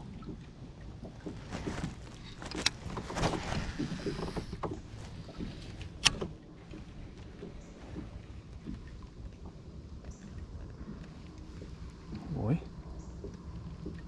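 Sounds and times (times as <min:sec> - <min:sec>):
knocks and rubbing on kayak hull: 0:01.0 - 0:08.8.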